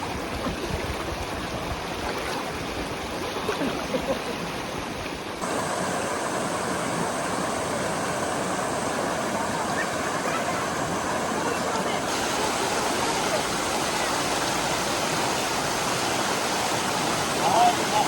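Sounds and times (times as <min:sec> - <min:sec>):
stream water rushing: 0:00.0 - 0:18.0.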